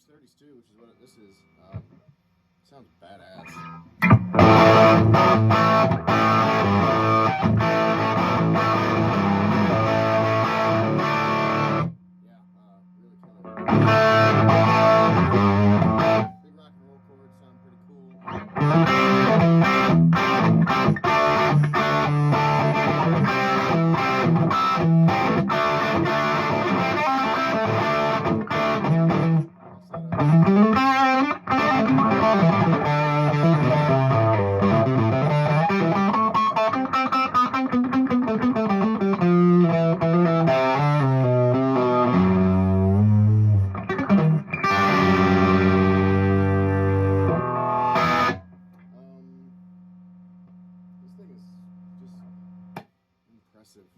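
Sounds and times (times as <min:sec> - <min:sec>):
overdriven electric guitar: 0:03.4 - 0:12.0, 0:13.3 - 0:16.4, 0:18.0 - 0:49.1.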